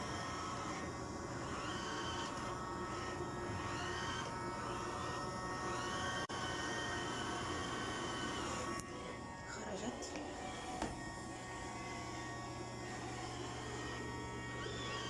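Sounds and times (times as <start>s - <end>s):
robot vacuum cleaner running: 0.0s - 15.0s.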